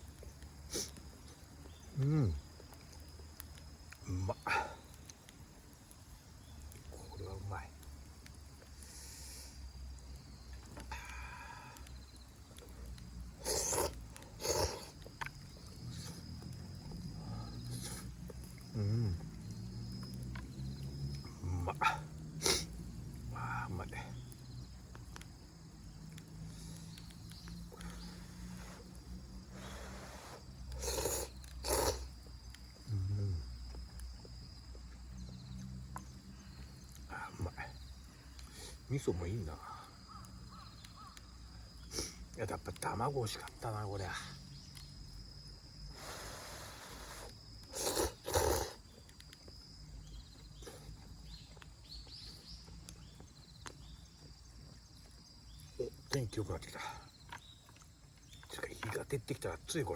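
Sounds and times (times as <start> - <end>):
person slurping noodles: 13.4 - 14.9, 30.8 - 32.1, 46.4 - 48.8.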